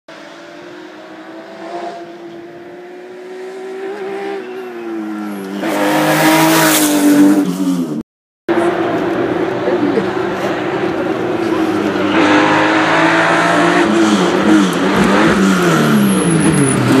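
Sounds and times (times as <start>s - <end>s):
rally car engine passing at speed: 0.1s - 7.9s, 8.5s - 17.0s.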